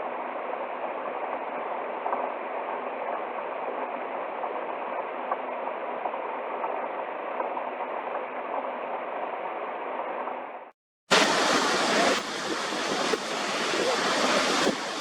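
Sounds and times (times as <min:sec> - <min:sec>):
waterfall rushing: 0:11.1 - 0:15.0.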